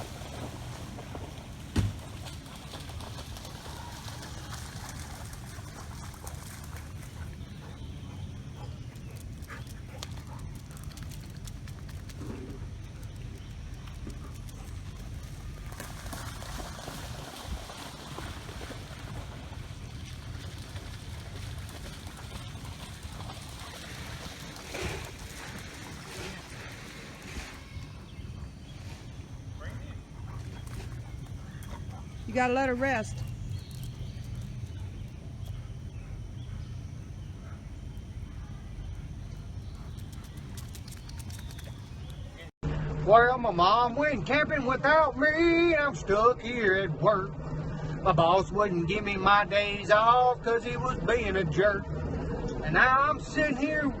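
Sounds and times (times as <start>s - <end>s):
wind buffeting microphone: 16.3s - 38.2s
low rumble: 33.1s - 54.0s.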